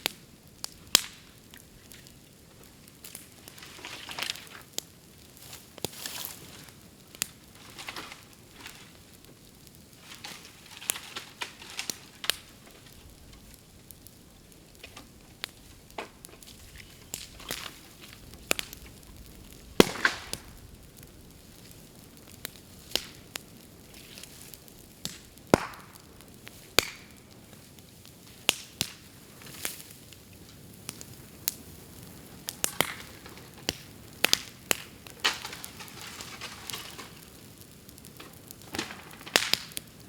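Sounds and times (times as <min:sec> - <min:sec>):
bamboo popping and cracking: 0:00.0 - 0:02.2, 0:10.0 - 0:27.6, 0:28.4 - 0:29.9, 0:32.4 - 0:40.0
bamboo bonfire hissing and crackling: 0:00.0 - 0:40.0.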